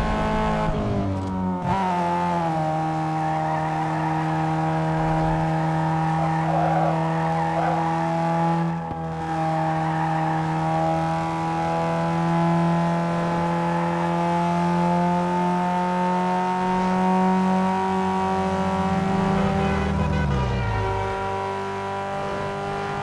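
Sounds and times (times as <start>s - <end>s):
turbo car engine at high revs: 0.0s - 23.0s.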